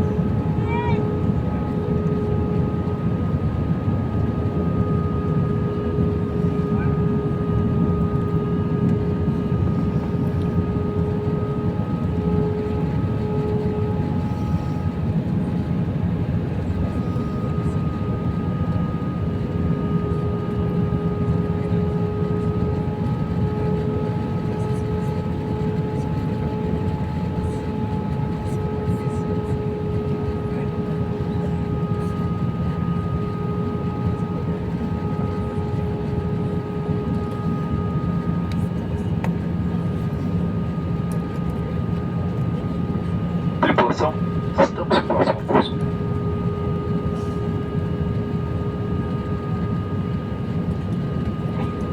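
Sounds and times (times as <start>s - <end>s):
aircraft engine and airflow rumble: 0.0s - 51.9s
steady hum tones: 43.6s - 46.0s.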